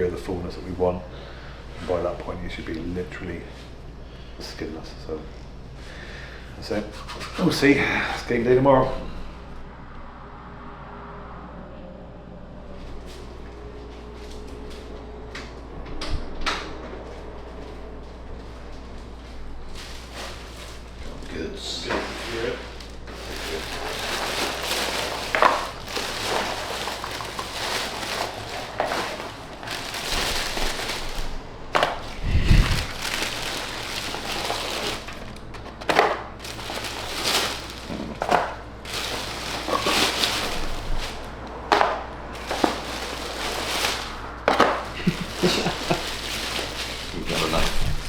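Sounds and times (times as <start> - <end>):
crinkling handling noise: 17.2 - 48.0.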